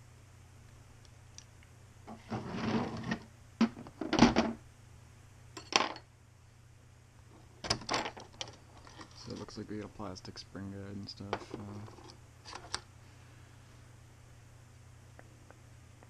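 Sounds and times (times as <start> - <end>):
scraping rustle: 2.1 - 3.2, 8.6 - 9.6.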